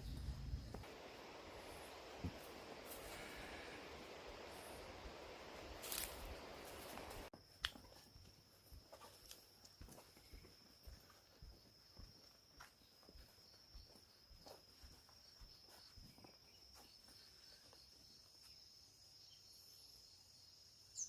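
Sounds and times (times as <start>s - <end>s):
high-pitched insect trill: 4.1s - 7.2s, 7.8s - 21.0s
soft footsteps: 5.7s - 17.3s.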